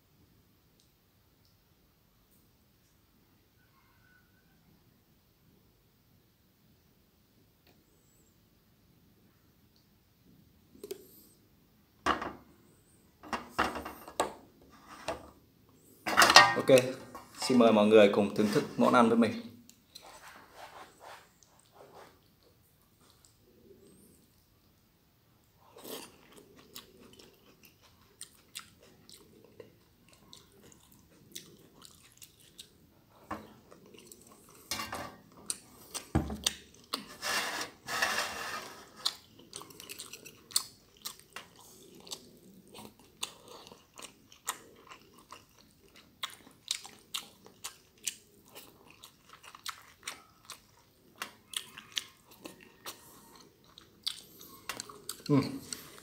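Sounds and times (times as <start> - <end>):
wet chewing with mouth clicks: 21.4 - 24.8, 25.6 - 34.7, 38.9 - 56.0.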